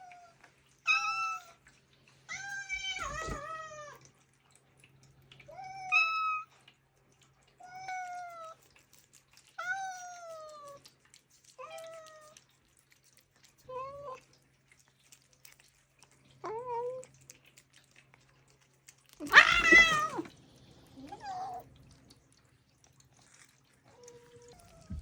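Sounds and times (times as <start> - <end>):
cats meowing: 0.9 - 1.6, 2.3 - 4.1, 5.5 - 6.5, 19.2 - 21.8, 23.9 - 25.0.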